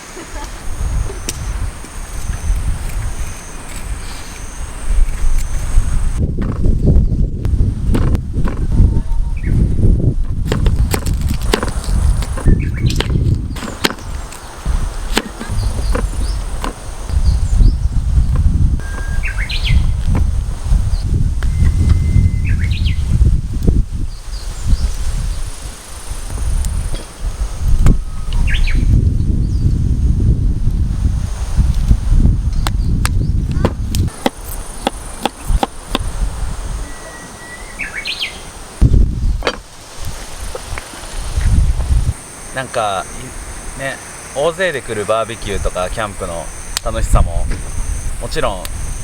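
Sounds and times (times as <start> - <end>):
campfire crackling: 0.0 - 8.7, 9.8 - 17.1, 32.7 - 36.7, 38.5 - 49.0
birds chirping: 0.0 - 10.1, 10.7 - 23.2, 32.5 - 49.0
bird chirping: 12.3 - 14.6, 15.2 - 16.5, 18.8 - 20.0, 36.8 - 38.6.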